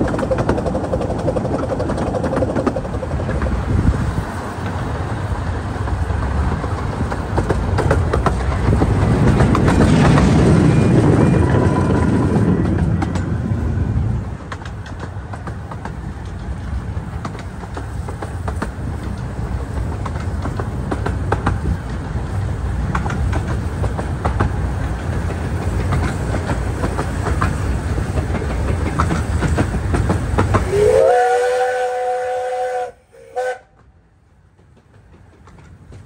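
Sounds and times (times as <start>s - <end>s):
miniature train rumbling: 0.0s - 36.0s
rail clicks: 0.0s - 36.0s
locomotive chime whistle: 30.6s - 33.8s.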